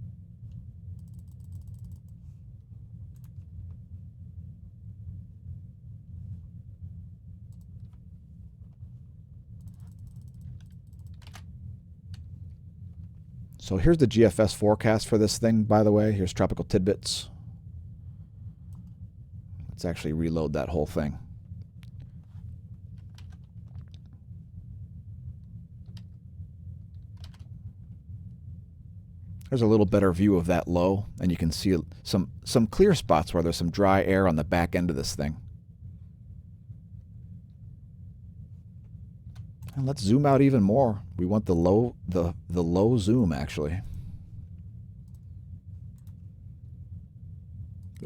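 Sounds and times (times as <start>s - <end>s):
steady low hum: 0.0s - 48.0s
keyboard keystrokes: 1.0s - 2.2s, 9.6s - 11.4s
mouse clicks: 1.0s - 2.2s, 9.6s - 11.4s.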